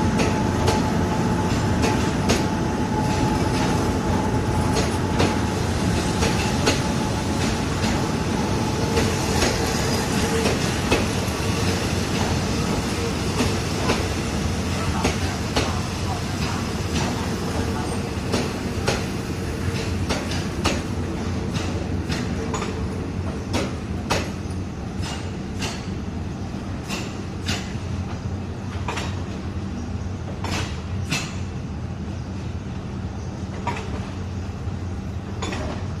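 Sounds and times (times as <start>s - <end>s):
train low hum: 0.0s - 36.0s
wheels clacking over rail joints: 4.7s - 8.2s, 21.5s - 24.4s, 28.7s - 29.3s, 35.4s - 35.9s.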